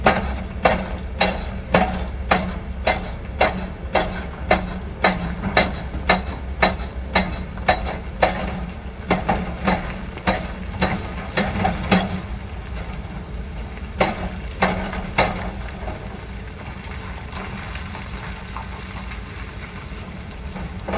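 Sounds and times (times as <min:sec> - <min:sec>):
construction machine striking: 0:00.0 - 0:13.2, 0:13.9 - 0:16.1, 0:20.5 - 0:20.9.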